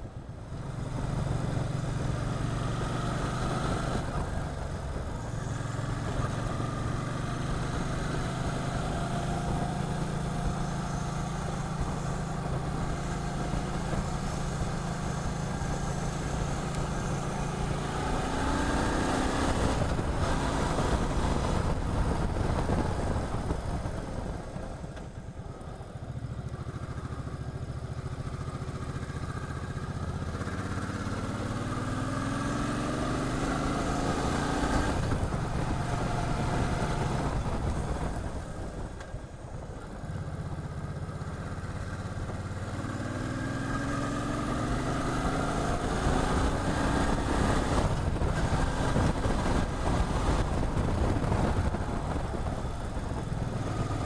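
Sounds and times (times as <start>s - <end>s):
wind noise: 0.0s - 25.9s, 30.4s - 54.0s
motorcycle engine revving: 0.5s - 24.7s, 25.6s - 38.9s, 39.9s - 54.0s.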